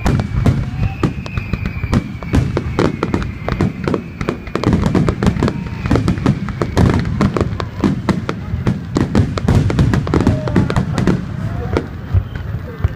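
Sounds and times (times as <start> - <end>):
firework whistle: 0.0 - 12.9
fireworks bangs and crackles: 0.0 - 12.9.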